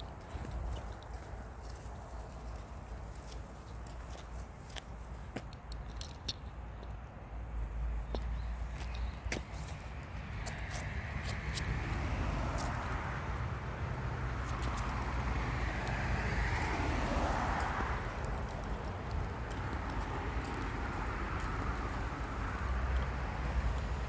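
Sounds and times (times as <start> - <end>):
wind rumble on microphone: 8.8 - 24.0
car passing by: 10.2 - 24.0.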